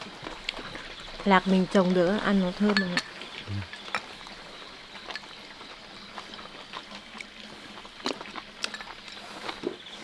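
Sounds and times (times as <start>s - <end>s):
chopsticks clinking against bowls: 2.6s - 3.9s.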